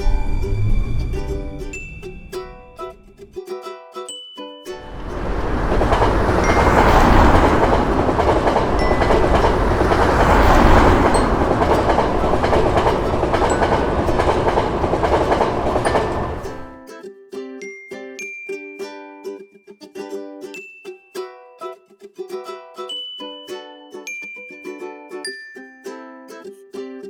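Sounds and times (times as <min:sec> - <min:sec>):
chiming music: 0:00.0 - 0:03.3, 0:04.1 - 0:16.8
train wheels roaring on rails: 0:00.0 - 0:03.4, 0:04.8 - 0:16.8.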